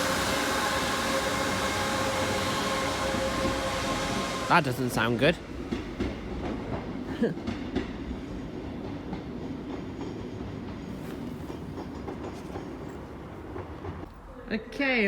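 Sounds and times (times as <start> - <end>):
train engine and wheel rumble: 0.0 - 15.0
rail clicks: 5.4 - 14.2.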